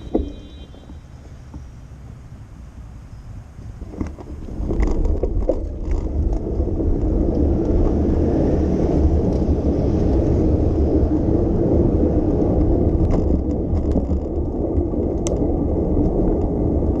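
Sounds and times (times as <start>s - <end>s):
bicycle riding rumble: 0.0s - 17.0s
tyre noise on road: 0.0s - 17.0s
wind on microphone: 3.3s - 17.0s.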